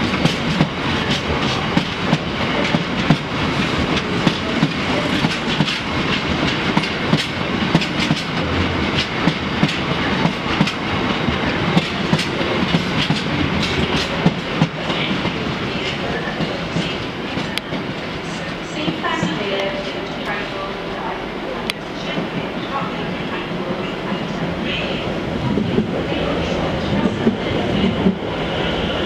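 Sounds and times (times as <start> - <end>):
train wheels clicking over rail joints: 0.0 - 20.4
train rumble: 0.0 - 29.0.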